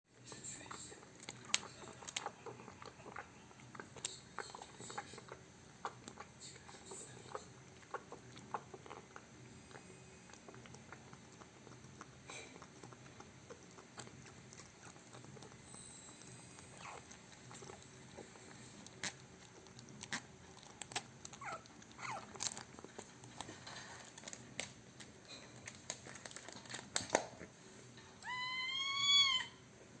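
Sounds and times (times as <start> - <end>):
cat clicking and rustling: 17.0 - 27.4
cat meowing: 28.2 - 29.6.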